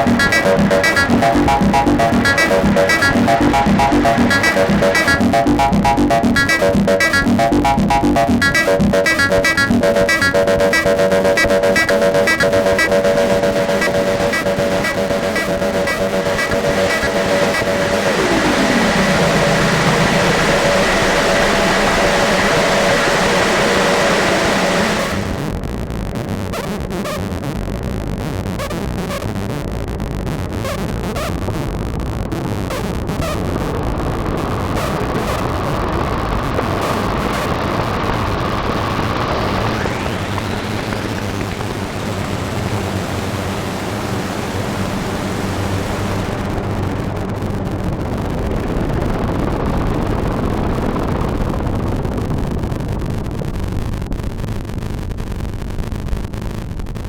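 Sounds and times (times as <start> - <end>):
faint rhythmic ticks: 0.0 - 18.2
held synth notes: 0.0 - 25.4
electronic techno synth sequence: 0.0 - 25.5.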